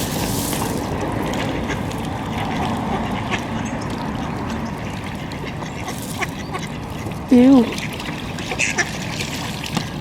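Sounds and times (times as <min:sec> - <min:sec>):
ducks quacking: 0:01.6 - 0:09.0.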